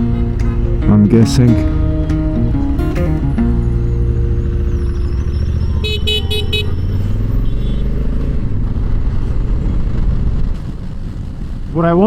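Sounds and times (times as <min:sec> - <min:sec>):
vehicle horn tooting: 0:00.0 - 0:08.0
motorcycle engine running: 0:00.0 - 0:11.6.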